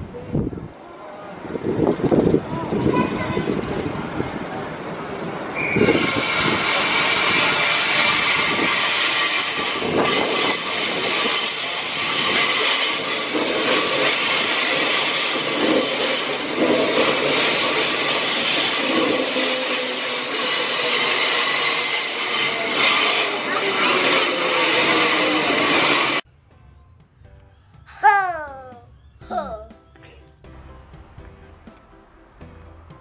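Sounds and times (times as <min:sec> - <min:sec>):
electric train running past: 0:00.8 - 0:27.1
high-pitched squeal: 0:05.6 - 0:26.2.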